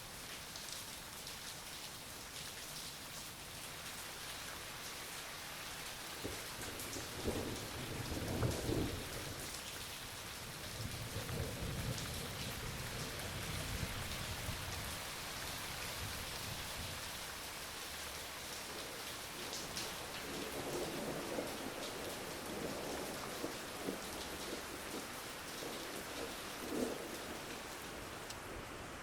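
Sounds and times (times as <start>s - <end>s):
steady rain falling: 0.0s - 29.0s
low rolling thunder: 6.2s - 9.4s, 10.7s - 15.0s, 20.0s - 27.5s.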